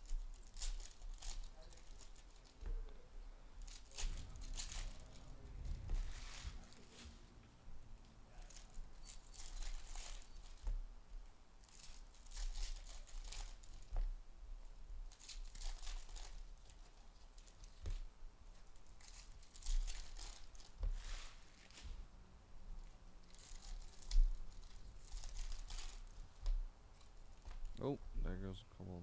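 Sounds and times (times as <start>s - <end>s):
packaging tearing and crinkling: 0.0s - 2.6s, 3.6s - 7.0s, 8.3s - 10.7s, 11.6s - 14.0s, 15.1s - 21.9s, 23.2s - 27.8s.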